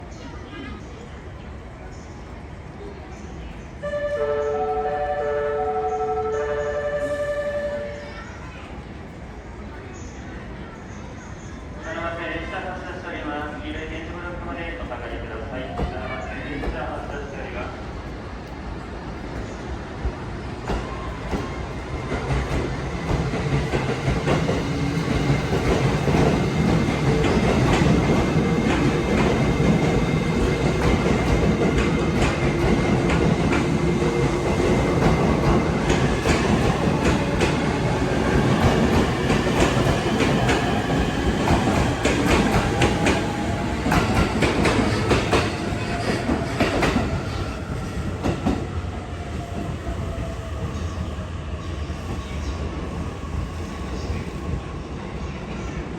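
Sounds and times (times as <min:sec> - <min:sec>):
train rumble: 0:00.0 - 0:55.9
train wheels clacking: 0:20.6 - 0:47.3.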